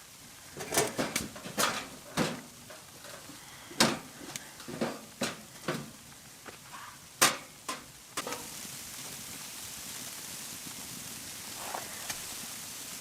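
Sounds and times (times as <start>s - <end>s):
steady hiss: 0.0s - 13.0s
firewood knocking and clattering: 0.6s - 6.6s, 7.2s - 8.6s.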